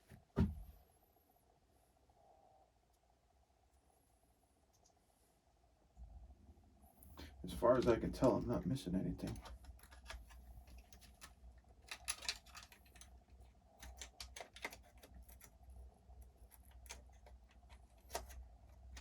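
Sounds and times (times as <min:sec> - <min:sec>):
small plastic parts clicking: 0:09.2 - 0:19.0.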